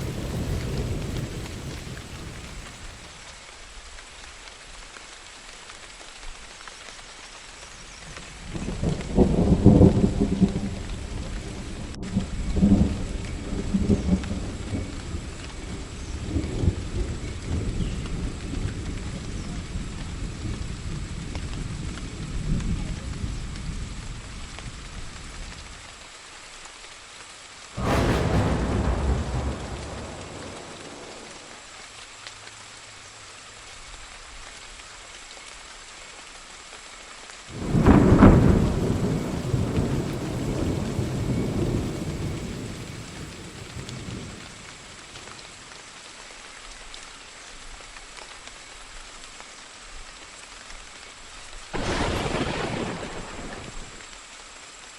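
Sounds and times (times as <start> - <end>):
thunderclaps: 0.0 - 3.2, 8.7 - 19.1, 27.8 - 31.7, 37.5 - 45.6, 51.8 - 54.0
thunder rumbling: 0.0 - 3.3, 8.5 - 24.4, 27.8 - 31.7, 37.5 - 45.6, 51.8 - 54.0
steady rain: 0.0 - 54.9.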